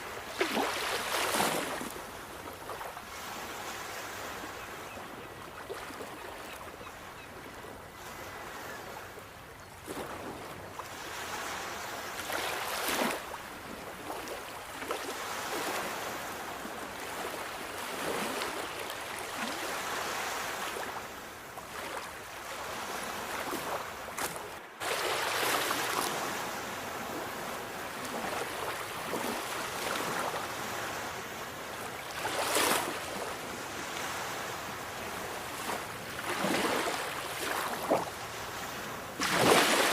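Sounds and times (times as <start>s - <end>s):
sea waves washing onto shore: 10.9s - 39.9s.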